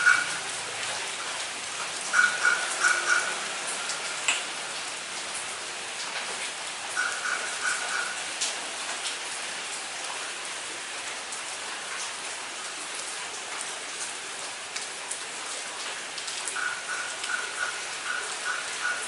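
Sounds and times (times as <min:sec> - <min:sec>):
steady rain: 0:00.0 - 0:19.0
drops ticking on hard surface: 0:16.5 - 0:19.0.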